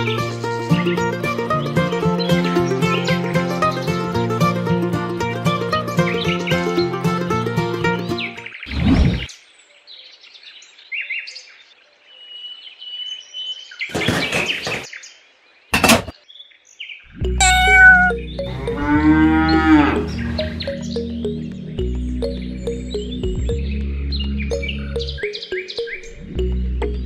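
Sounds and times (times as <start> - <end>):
background music: 0.0 - 8.4, 17.2 - 27.0
cow mooing: 17.4 - 20.4.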